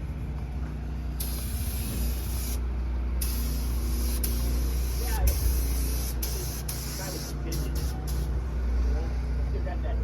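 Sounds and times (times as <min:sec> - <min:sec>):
steady low hum: 0:00.0 - 0:10.0
compressed air hissing: 0:01.0 - 0:08.5.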